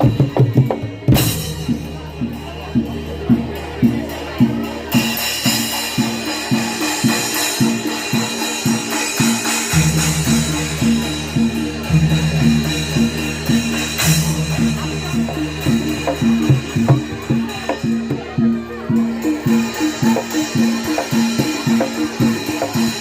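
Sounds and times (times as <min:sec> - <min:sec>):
drums and jingling percussion: 0:00.0 - 0:23.0.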